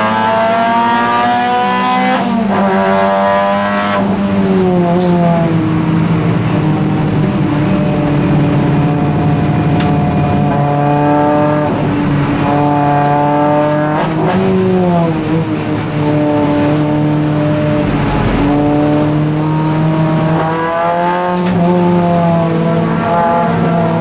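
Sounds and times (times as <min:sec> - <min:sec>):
race car engine from inside cabin: 0:00.0 - 0:24.0
steady road noise: 0:00.0 - 0:24.0
gear change: 0:04.0 - 0:22.3.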